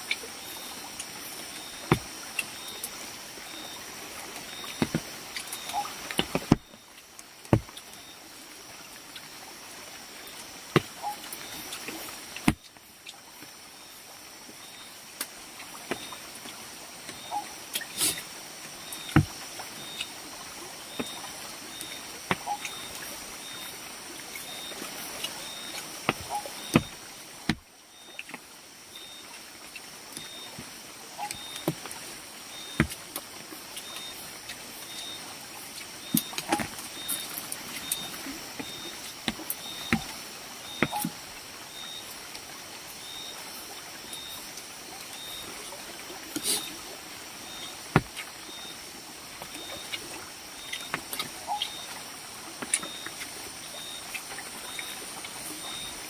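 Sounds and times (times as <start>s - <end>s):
steady high hiss: 0.0s - 56.0s
faint high chirp: 1.6s - 8.4s, 11.0s - 11.8s, 17.1s - 18.2s, 18.8s - 20.2s, 20.8s - 27.0s, 28.9s - 29.4s, 30.2s - 30.6s, 31.2s - 31.7s, 33.8s - 34.2s, 34.9s - 35.3s, 36.0s - 42.1s, 44.1s - 44.5s, 45.1s - 45.6s, 48.5s - 48.9s, 49.6s - 50.0s, 50.6s - 52.0s, 52.8s - 56.0s.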